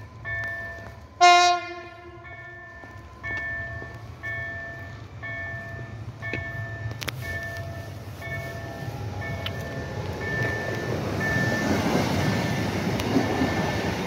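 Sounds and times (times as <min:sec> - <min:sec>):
electronic warning bell: 0:00.0 - 0:01.5, 0:02.2 - 0:14.0
electric train rumbling: 0:00.0 - 0:14.0
train horn blast: 0:01.2 - 0:02.5.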